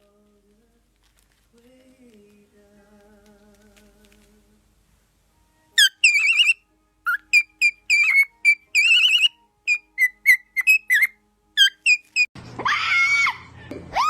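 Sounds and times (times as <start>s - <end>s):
parrot whistling: 5.8s - 12.3s.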